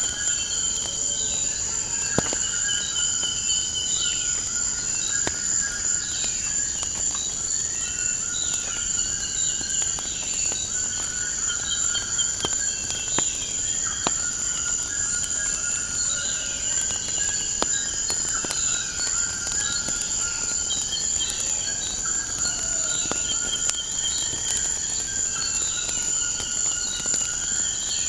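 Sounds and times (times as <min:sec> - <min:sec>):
high insect trill: 0:00.0 - 0:28.0
wood fire crackling: 0:00.0 - 0:28.0
birds calling and chirping: 0:08.6 - 0:28.0.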